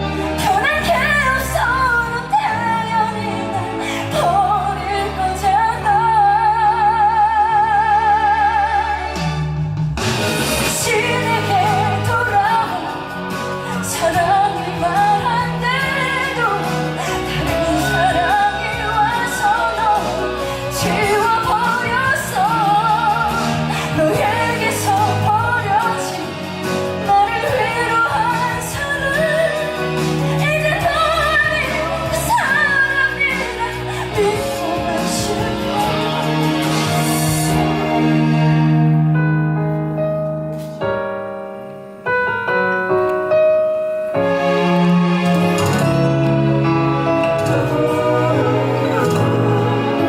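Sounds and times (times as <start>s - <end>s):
instrumental accompaniment: 0.0s - 50.0s
woman singing a slow ballad: 10.8s - 26.4s, 27.0s - 36.4s.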